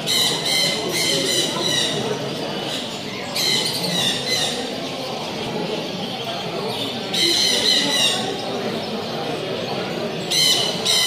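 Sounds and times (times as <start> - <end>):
parrots squawking: 0.0 - 2.0, 10.3 - 11.0
murmur of voices: 0.0 - 11.0.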